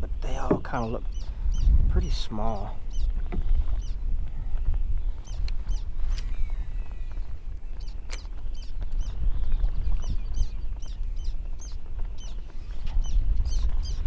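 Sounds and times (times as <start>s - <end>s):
birds chirping: 0.0s - 14.0s
wind rumble on microphone: 0.0s - 14.0s.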